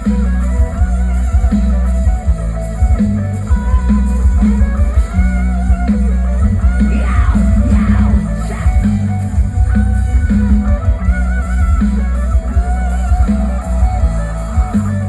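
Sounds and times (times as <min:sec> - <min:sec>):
music with pulsing bass beat: 0:00.0 - 0:15.0
plucked-string melody: 0:00.0 - 0:15.0.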